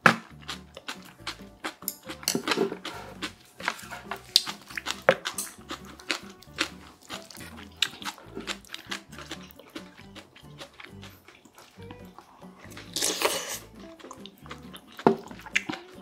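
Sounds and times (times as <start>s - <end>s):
wooden spoon scraping metal bowl: 1.8s - 9.4s.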